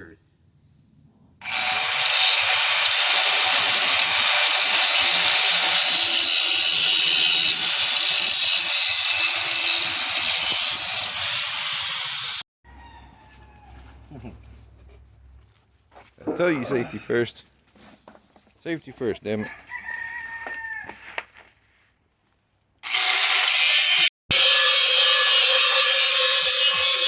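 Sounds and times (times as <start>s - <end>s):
angle grinder grinding metal: 1.4s - 12.4s, 22.8s - 27.0s.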